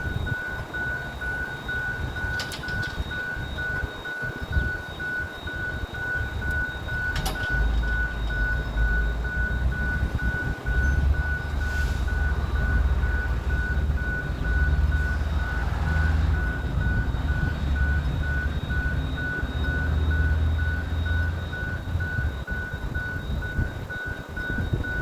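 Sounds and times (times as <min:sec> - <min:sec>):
diesel locomotive engine rumbling: 0:00.0 - 0:25.0
electronic tone beeping: 0:00.0 - 0:25.0.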